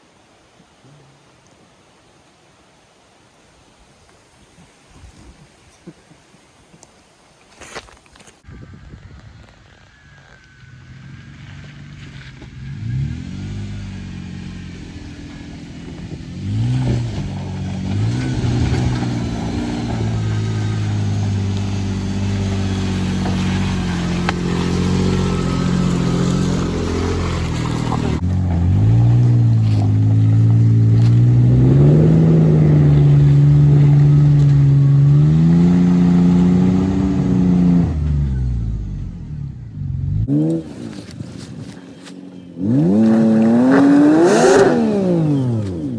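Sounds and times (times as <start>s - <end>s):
truck engine revving: 9.5s - 45.9s.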